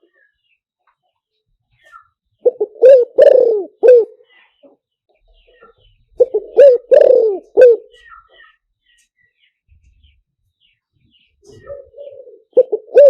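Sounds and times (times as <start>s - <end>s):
dove cooing: 2.4s - 4.3s, 6.2s - 8.5s, 11.4s - 13.0s.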